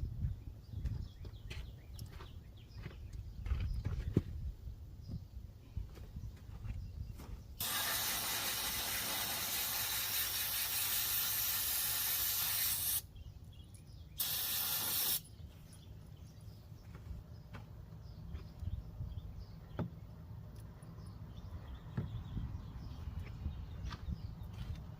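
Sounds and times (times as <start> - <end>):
pressurized spray hissing: 7.6 - 13.0, 14.2 - 15.2.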